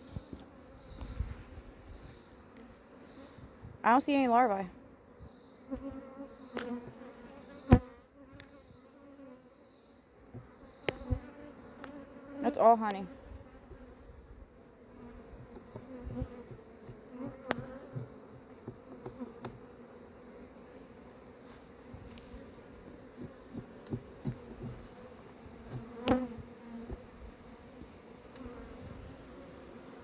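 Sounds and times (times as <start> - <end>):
honeybees buzzing: 0.0 - 30.0.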